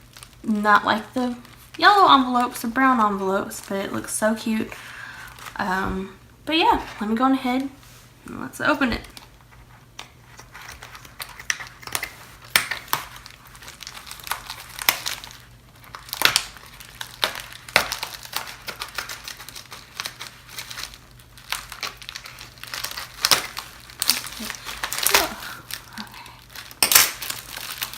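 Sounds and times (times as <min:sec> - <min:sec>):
envelope packaging crinkling: 0:00.0 - 0:05.9, 0:09.0 - 0:27.9.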